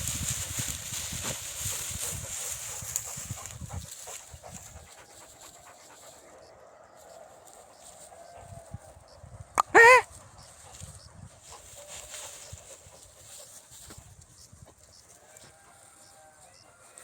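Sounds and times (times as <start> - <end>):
dog panting: 1.5 - 6.6.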